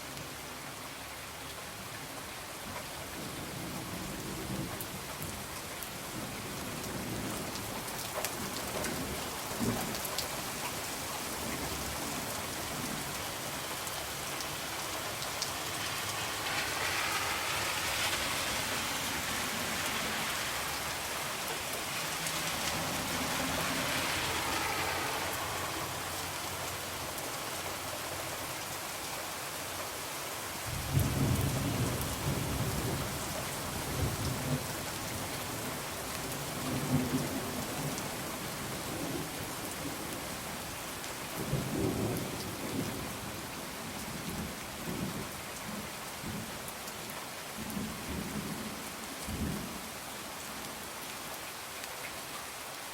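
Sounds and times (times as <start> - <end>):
rain pattering on a window: 0.0 - 52.9
low rumble of thunder: 30.6 - 35.2.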